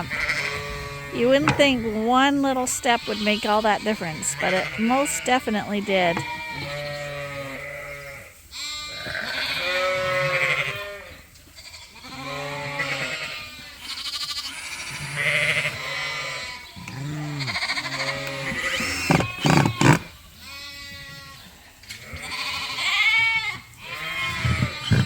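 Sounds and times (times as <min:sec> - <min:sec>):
sheep bleating: 0:00.0 - 0:25.0
sharp knocks: 0:01.3 - 0:02.0.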